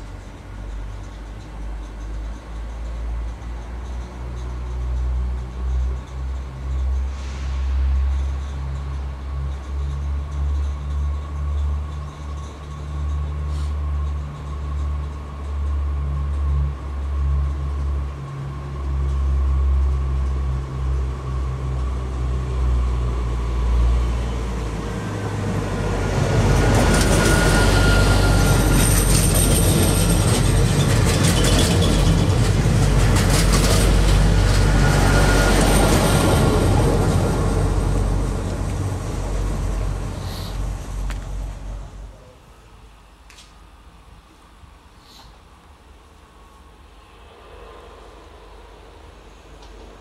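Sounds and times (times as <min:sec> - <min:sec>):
train rumbling on track: 0:00.0 - 0:44.8, 0:45.5 - 0:50.0
high-pitched wheel squeal: 0:26.5 - 0:30.1, 0:34.4 - 0:36.7
wheel-on-rail clatter: 0:26.5 - 0:39.9.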